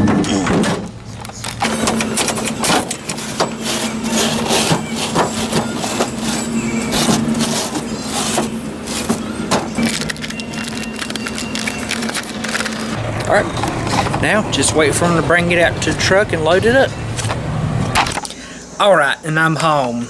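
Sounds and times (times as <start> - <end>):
vehicle running hum: 1.2 - 18.8.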